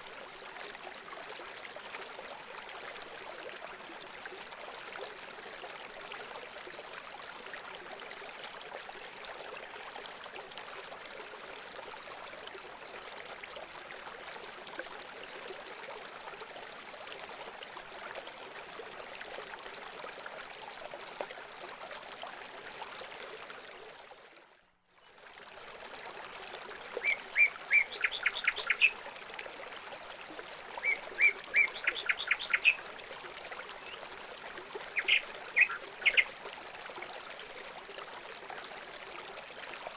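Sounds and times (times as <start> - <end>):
water trickling: 25.0 - 39.9.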